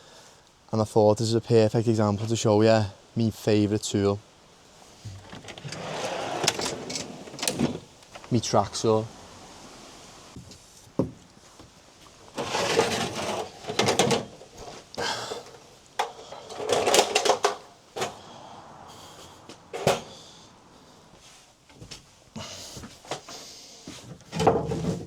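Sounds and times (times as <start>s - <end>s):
clattering: 5.0s - 8.5s, 12.3s - 14.5s, 16.0s - 18.2s
equipment knocking and rattling: 5.0s - 8.7s.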